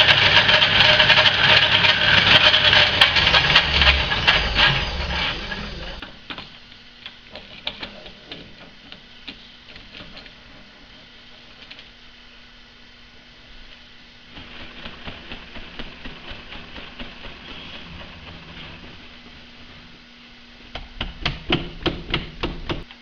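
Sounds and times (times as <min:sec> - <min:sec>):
metalworking machine clattering: 0:00.0 - 0:06.0
faint steady hum: 0:03.0 - 0:14.5.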